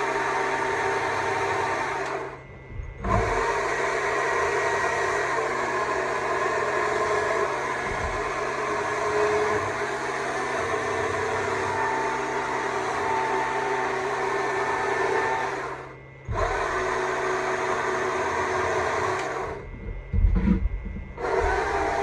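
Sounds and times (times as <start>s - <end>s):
low bumps: 19.7s - 21.7s.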